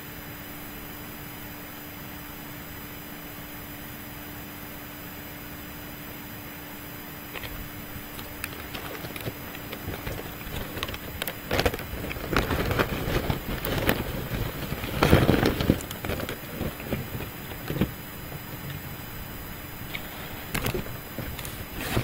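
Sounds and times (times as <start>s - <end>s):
person chewing wetly: 7.4s - 12.5s.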